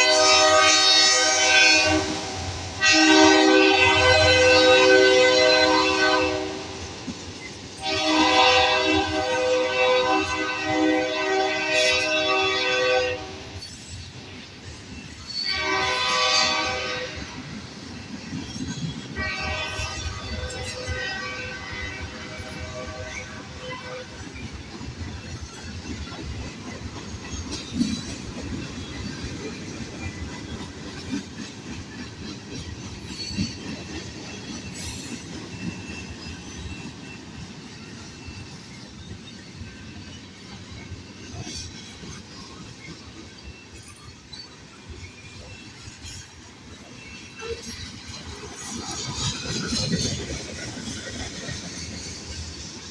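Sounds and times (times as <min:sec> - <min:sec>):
locomotive horn blasts: 0:00.0 - 0:06.8, 0:07.8 - 0:13.6, 0:15.4 - 0:17.4, 0:19.2 - 0:24.2
train rumbling past: 0:00.0 - 0:52.9.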